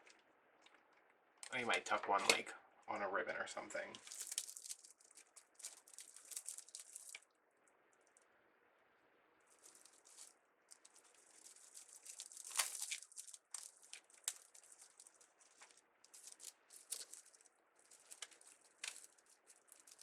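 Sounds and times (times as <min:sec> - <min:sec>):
crinkling rustles of mesh: 0:03.8 - 0:08.3, 0:09.4 - 0:20.0.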